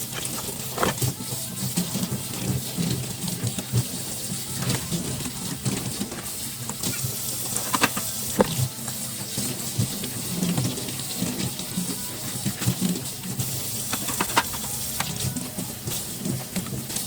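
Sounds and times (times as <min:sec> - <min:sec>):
dishes and utensils clinking: 0:00.0 - 0:01.2, 0:02.3 - 0:08.7, 0:12.1 - 0:17.0.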